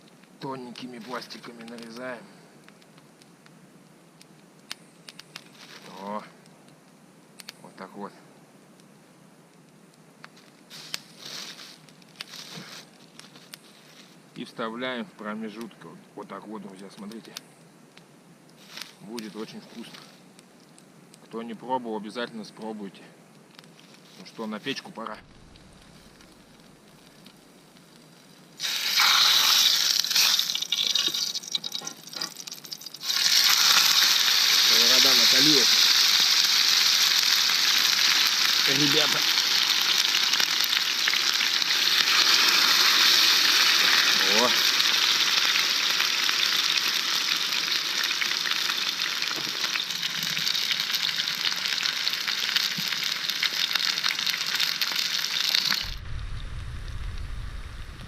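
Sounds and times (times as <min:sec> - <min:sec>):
low rumble: 0:25.1 - 0:27.2, 0:55.8 - 0:58.0
chicken sizzling in a frying pan: 0:28.6 - 0:56.0.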